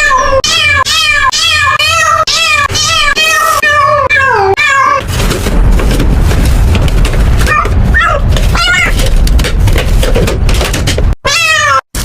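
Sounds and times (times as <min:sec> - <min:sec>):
cat meowing: 0:00.0 - 0:05.0, 0:07.5 - 0:09.0, 0:11.2 - 0:11.9
loud rough rushing noise: 0:05.0 - 0:11.2.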